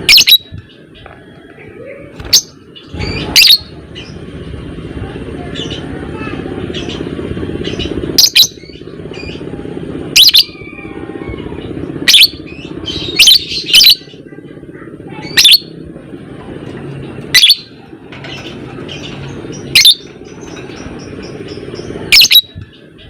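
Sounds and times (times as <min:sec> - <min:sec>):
bird shrill chirps: 0:00.0 - 0:00.6, 0:02.2 - 0:04.2, 0:10.2 - 0:11.3, 0:12.0 - 0:14.2, 0:15.2 - 0:15.8, 0:17.3 - 0:17.7, 0:18.4 - 0:22.6.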